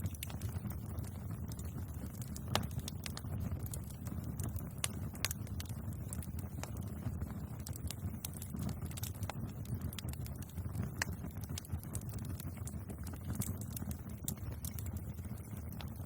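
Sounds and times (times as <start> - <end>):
burning wood pops and crackles: 0.0 - 16.0
low rumble of flames: 0.0 - 16.0.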